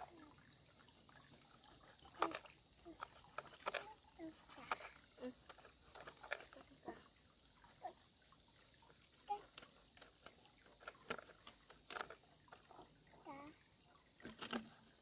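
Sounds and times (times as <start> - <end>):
insect chorus chirring: 0.0 - 15.0
light clicks and knocks: 1.2 - 6.9, 9.3 - 12.9, 14.2 - 15.0.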